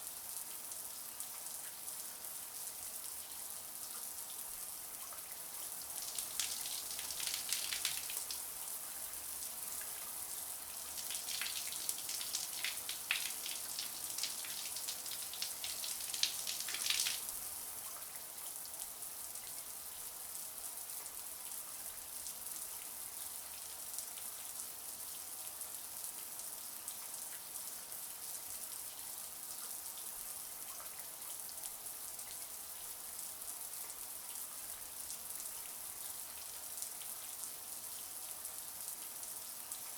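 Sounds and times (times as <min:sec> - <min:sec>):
water splattering: 0:06.0 - 0:08.4, 0:11.0 - 0:17.3.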